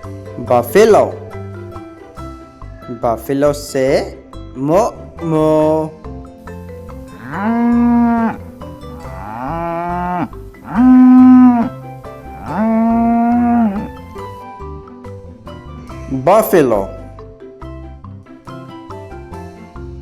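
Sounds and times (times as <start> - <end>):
soft background music: 0.0 - 20.0
buffalo mooing: 7.0 - 14.3.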